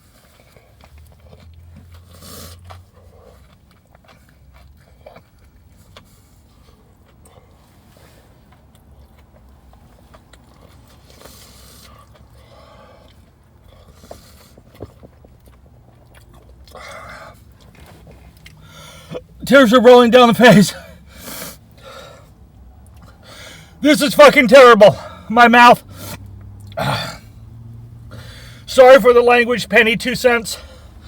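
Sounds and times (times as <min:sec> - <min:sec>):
chewing fried chicken: 0:00.0 - 0:19.2, 0:21.3 - 0:23.4, 0:25.9 - 0:27.0.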